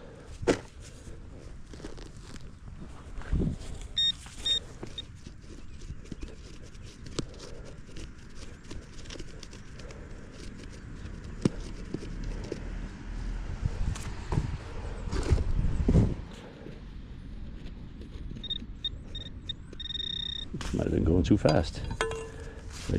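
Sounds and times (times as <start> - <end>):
digging in soil: 0.1 - 13.1, 13.8 - 22.9
metal detector beeps: 4.0 - 5.1, 18.4 - 20.6.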